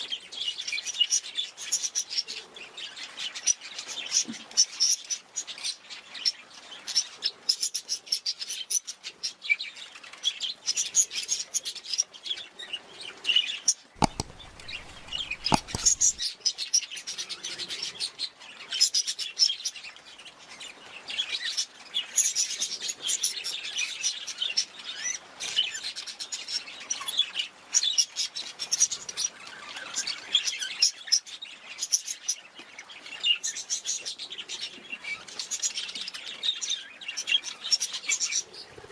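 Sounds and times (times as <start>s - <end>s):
sharp clicks: 14.0s - 16.2s.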